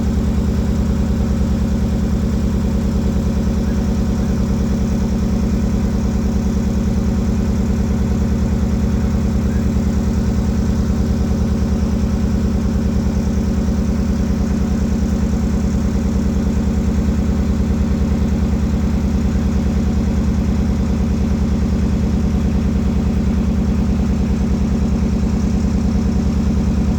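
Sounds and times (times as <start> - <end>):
boat engine running: 0.0 - 26.9.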